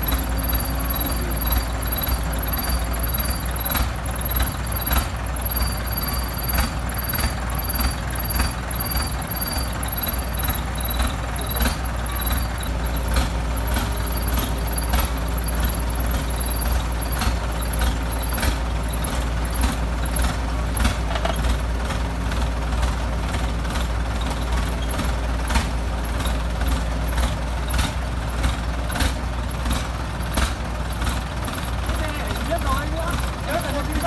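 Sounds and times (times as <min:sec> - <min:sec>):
excavator diesel engine rumbling: 0:00.0 - 0:34.0
metal clicks and knocks: 0:20.8 - 0:21.5.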